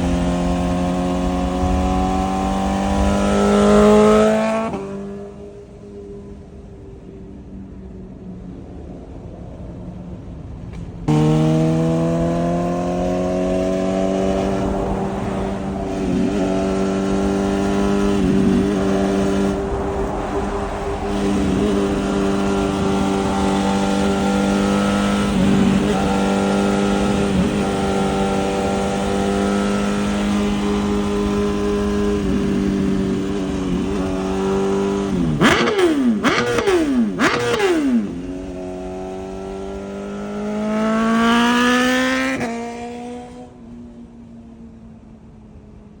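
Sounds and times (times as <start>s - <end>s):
motorcycle engine revving: 0.0s - 6.1s, 11.0s - 43.6s.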